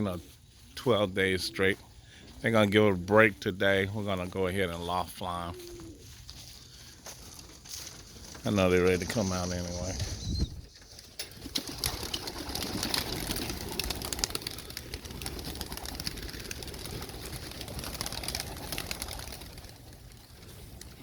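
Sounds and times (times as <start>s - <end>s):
pigeons cooing: 5.3s - 6.9s, 11.2s - 21.0s.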